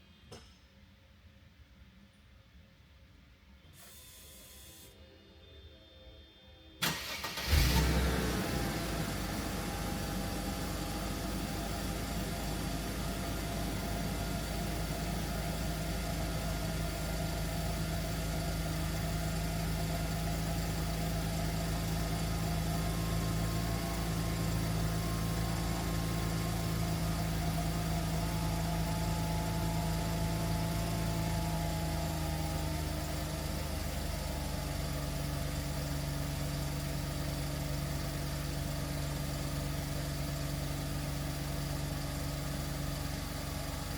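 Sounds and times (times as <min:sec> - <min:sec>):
car engine idling: 0:06.8 - 0:43.9.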